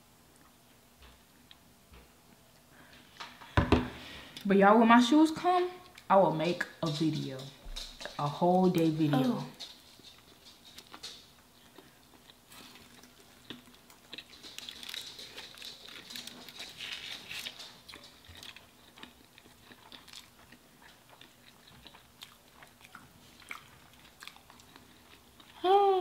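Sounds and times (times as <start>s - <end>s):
chewing food: 5.8s - 25.6s.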